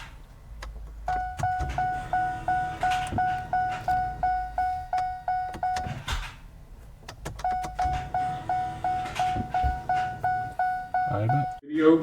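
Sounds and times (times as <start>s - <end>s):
dashboard warning chime beeping: 1.0s - 6.1s, 7.3s - 11.6s.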